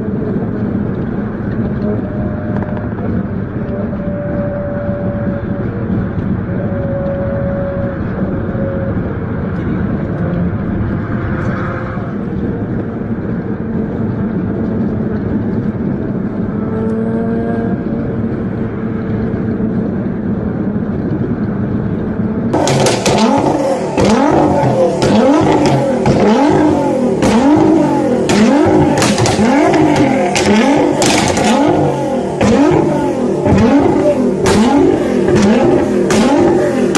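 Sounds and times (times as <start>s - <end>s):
car engine droning: 0.0s - 36.9s
sports car engine revving: 0.0s - 36.9s.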